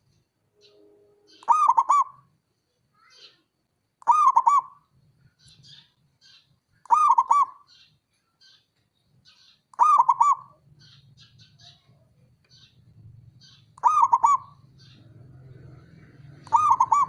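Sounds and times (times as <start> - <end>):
faint high chirps: 0.0 - 17.0
dove cooing: 1.4 - 2.2, 4.0 - 4.8, 6.9 - 7.6, 9.8 - 10.6, 13.4 - 17.0.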